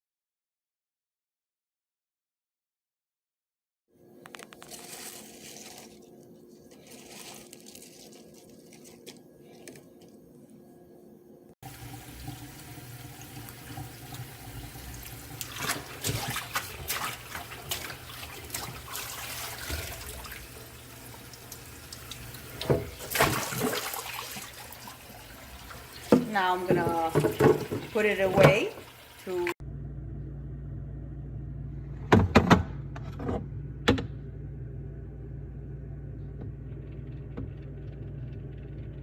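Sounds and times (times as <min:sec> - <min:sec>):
tap water running into sink: 0:11.6 - 0:29.6.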